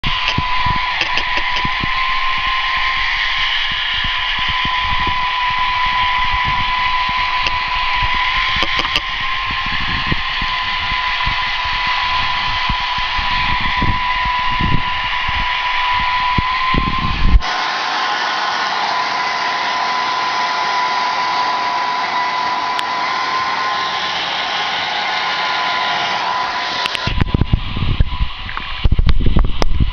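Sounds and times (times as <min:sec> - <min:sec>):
low gusty rumble: 0:00.0 - 0:17.4, 0:27.1 - 0:29.9
hair dryer whining: 0:00.0 - 0:29.9.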